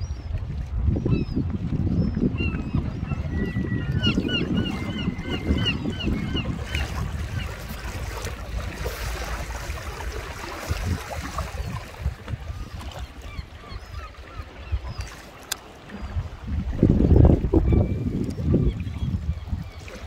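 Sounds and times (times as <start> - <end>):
wind rumble on microphone: 0.0 - 20.0
lapping water: 6.4 - 13.5.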